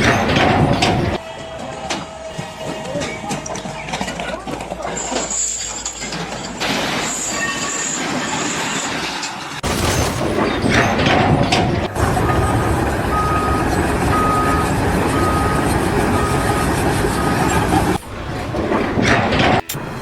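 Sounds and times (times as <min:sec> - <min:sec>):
heavy machinery running: 0:00.0 - 0:20.0
reversing alarm beeping: 0:10.0 - 0:20.0.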